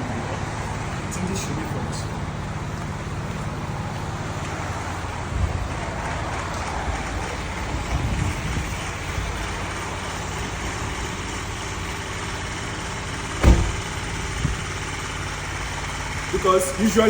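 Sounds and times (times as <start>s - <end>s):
car engine idling: 0.0s - 17.0s
sharp thump: 13.4s - 14.8s.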